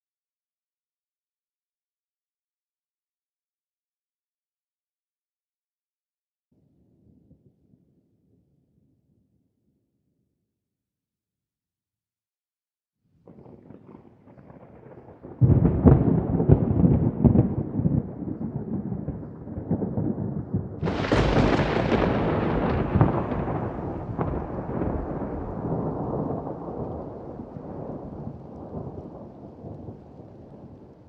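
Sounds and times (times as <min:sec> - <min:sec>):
rain: 0:13.2 - 0:31.0
rolling thunder: 0:13.3 - 0:31.0
sharp thunderclap: 0:13.3 - 0:31.0.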